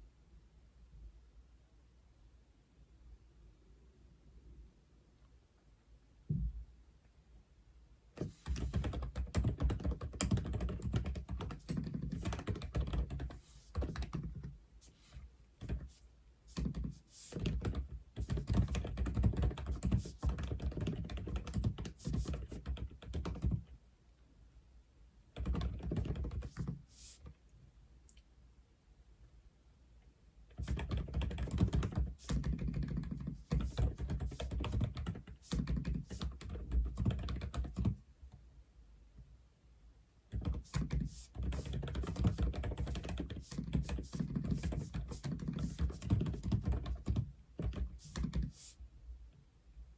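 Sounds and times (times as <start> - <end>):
mechanical keyboard typing: 8.2 - 14.5, 15.6 - 15.9, 16.5 - 23.6, 25.4 - 26.8, 30.6 - 38.0, 40.3 - 48.7.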